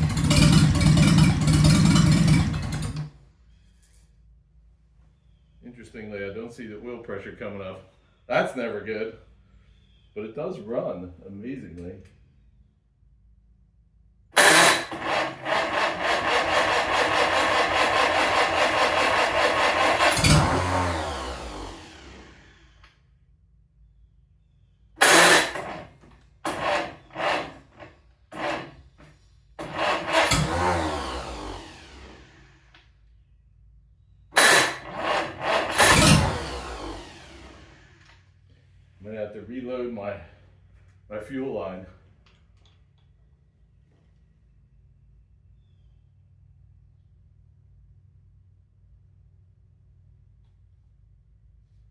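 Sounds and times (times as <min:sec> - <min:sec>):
tractor engine sputtering: 0:00.0 - 0:03.2, 0:14.4 - 0:22.8, 0:25.0 - 0:32.8, 0:34.4 - 0:38.2.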